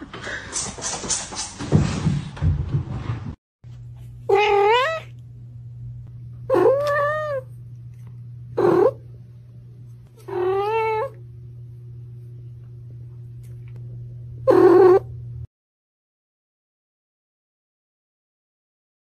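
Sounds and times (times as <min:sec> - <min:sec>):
steady low hum: 0:03.7 - 0:15.5
cat meowing: 0:04.3 - 0:05.1, 0:06.5 - 0:07.5, 0:10.2 - 0:11.2, 0:14.5 - 0:15.1.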